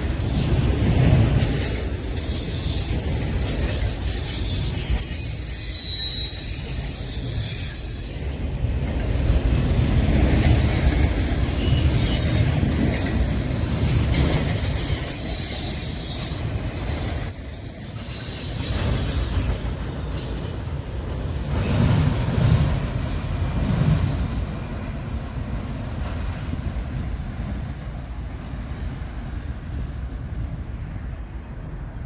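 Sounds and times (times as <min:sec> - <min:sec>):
train wheels squealing: 0:00.0 - 0:28.8
train cars rumbling past: 0:00.0 - 0:32.0.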